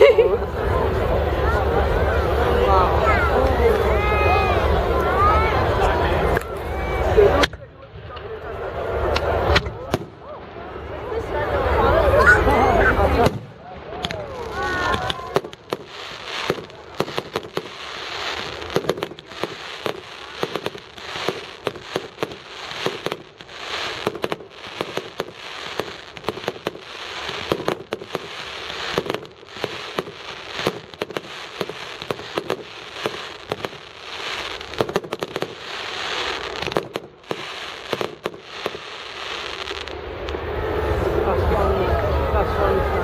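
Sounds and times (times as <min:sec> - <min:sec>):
fireworks crackling hiss: 0:08.7 - 0:42.4
fireworks bangs and pops: 0:09.0 - 0:10.3, 0:12.3 - 0:40.4.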